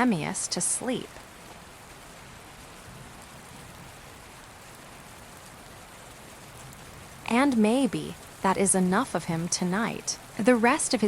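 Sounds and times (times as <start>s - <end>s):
steady rain hiss: 0.0s - 11.0s.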